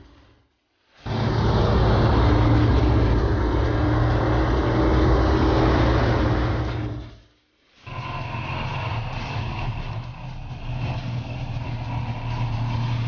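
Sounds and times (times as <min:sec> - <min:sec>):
race car engine running: 0:07.9 - 0:13.0.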